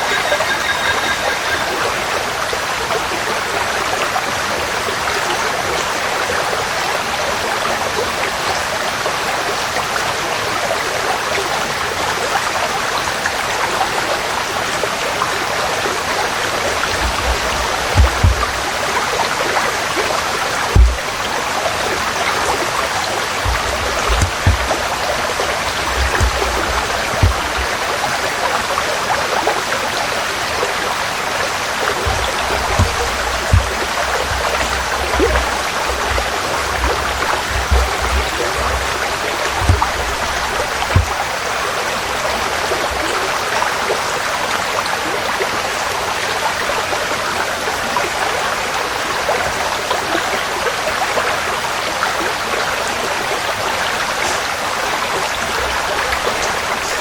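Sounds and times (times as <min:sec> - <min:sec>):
stream flowing over stones: 0:00.0 - 0:57.0
low thumps: 0:16.6 - 0:18.8, 0:20.7 - 0:21.3, 0:23.4 - 0:28.0, 0:31.9 - 0:41.4.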